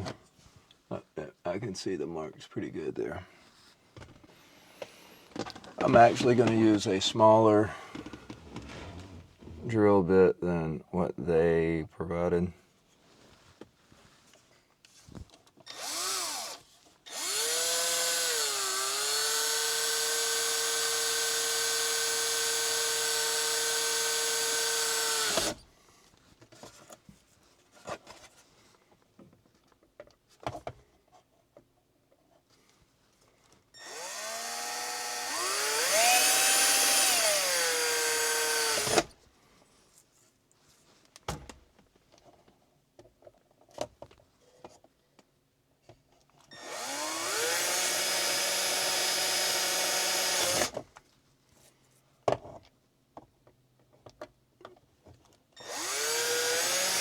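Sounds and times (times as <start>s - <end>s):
power drill drilling: 15.7s - 25.6s, 33.8s - 39.1s, 46.5s - 50.8s, 55.6s - 57.0s.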